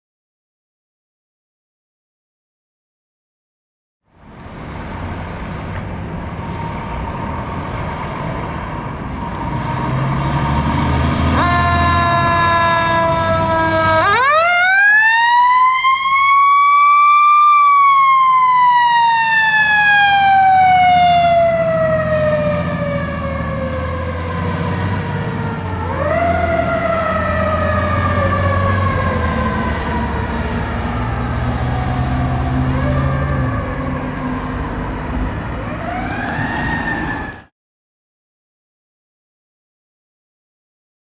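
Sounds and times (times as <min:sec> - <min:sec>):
fire engine rumbling: 0:04.1 - 0:37.5
siren sweeping up and down: 0:06.4 - 0:37.5
horn blast: 0:11.1 - 0:14.1.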